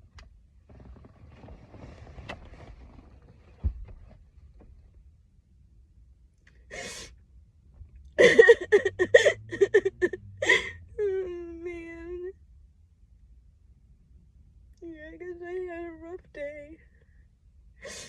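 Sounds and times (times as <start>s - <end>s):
sniffling breath: 6.7s - 7.1s
woman crying: 6.8s - 7.1s, 8.2s - 12.0s.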